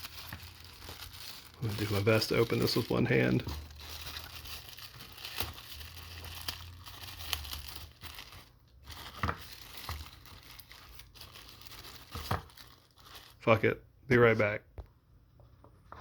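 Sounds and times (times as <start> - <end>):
packaging crinkling and rustling: 0.0 - 13.6.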